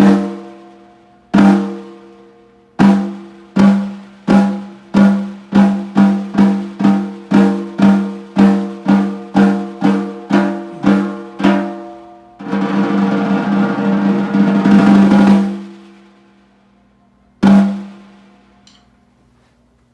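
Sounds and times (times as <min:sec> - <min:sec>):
snare drum roll: 0:00.0 - 0:02.2, 0:02.8 - 0:16.6, 0:17.4 - 0:18.6
snare drum strokes: 0:00.0 - 0:02.2, 0:02.8 - 0:16.5, 0:17.4 - 0:18.8.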